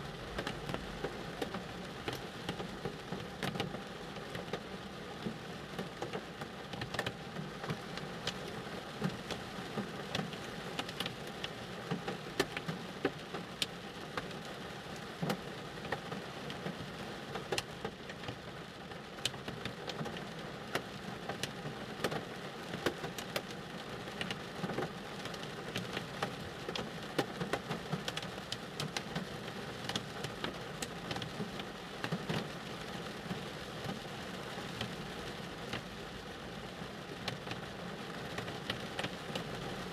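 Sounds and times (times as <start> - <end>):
rain pattering on a car: 0.0 - 39.9.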